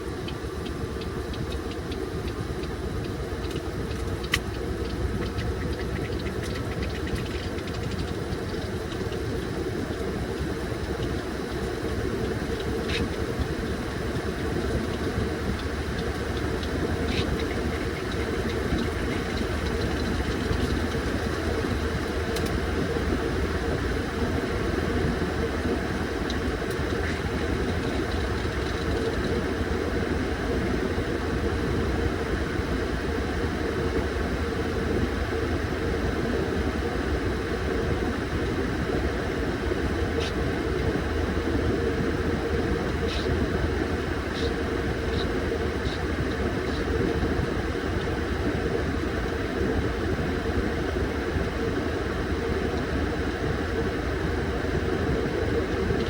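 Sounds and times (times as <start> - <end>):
washing machine motor hum: 0.0 - 56.0
faint clicks: 0.2 - 10.0, 10.8 - 22.7.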